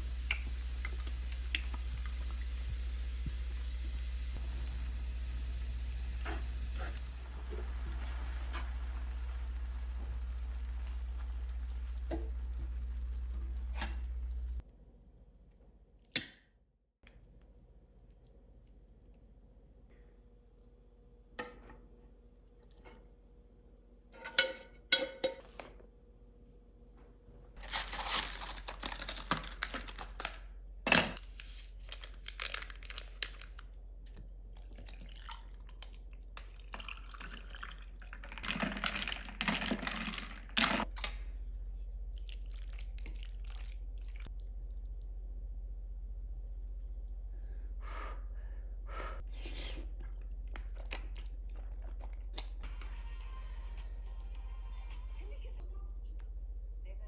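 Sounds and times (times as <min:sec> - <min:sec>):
kitchenware clicking and knocking: 0:24.2 - 0:25.5.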